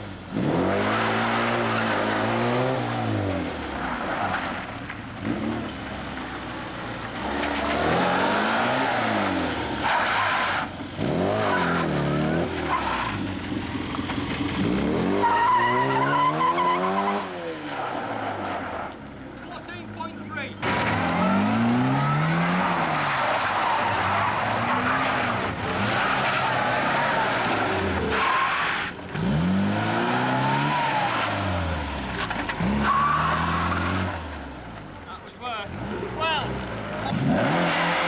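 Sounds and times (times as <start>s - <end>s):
car engine revving: 0.0s - 38.0s
tyres squealing: 9.8s - 13.3s, 15.1s - 18.9s, 19.5s - 29.0s, 32.3s - 34.2s.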